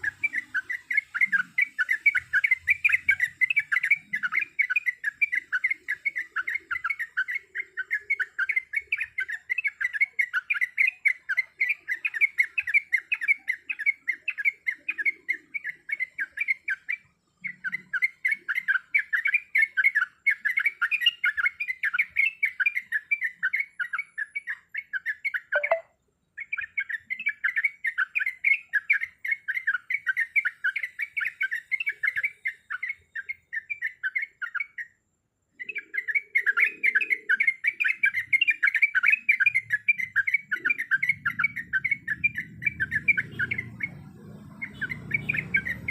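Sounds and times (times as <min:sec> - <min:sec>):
bird chattering in short notes: 0:24.6 - 0:26.7.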